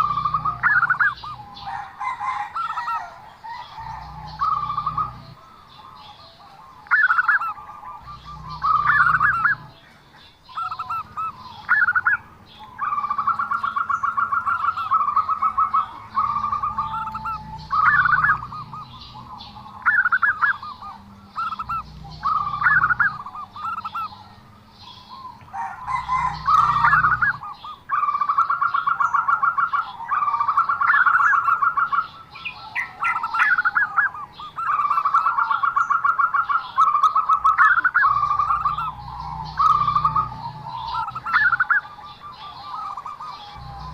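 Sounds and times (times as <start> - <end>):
dove cooing: 0.0 - 43.9.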